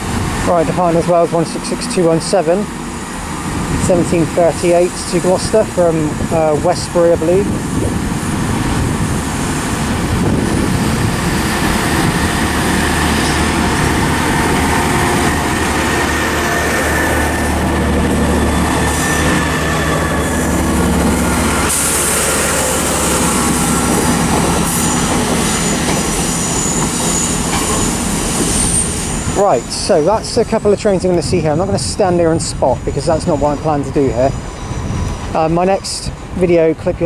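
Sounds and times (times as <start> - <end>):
train wheels running over rails: 0.0 - 36.9
train engine drone: 0.0 - 37.0
high wheel squeal: 10.9 - 31.0, 31.6 - 36.7.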